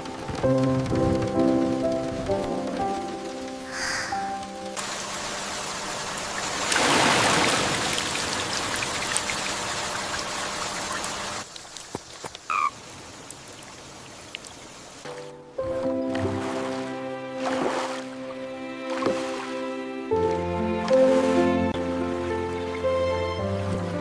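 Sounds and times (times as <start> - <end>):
heavy rain falling: 0.0 - 15.0
dripping water: 6.5 - 15.0.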